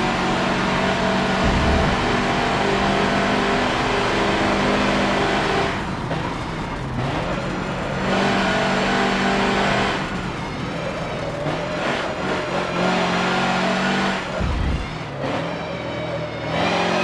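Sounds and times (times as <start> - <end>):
truck diesel engine running hard: 0.0 - 17.0
short low thump: 1.4 - 2.6.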